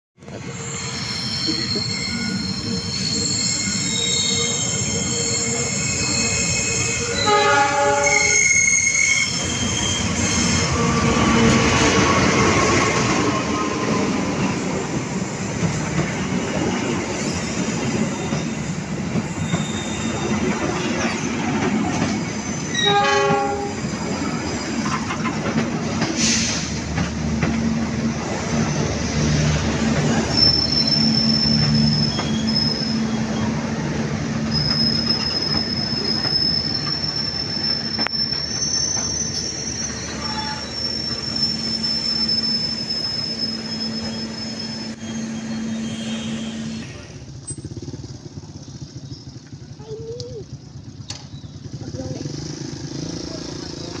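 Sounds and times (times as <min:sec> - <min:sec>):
train coaches rumbling and clattering: 0:00.2 - 0:54.0
high wheel squeal: 0:00.3 - 0:27.1, 0:27.8 - 0:47.9
train horn: 0:06.7 - 0:09.3, 0:22.7 - 0:23.9, 0:40.2 - 0:40.7, 0:45.7 - 0:47.0.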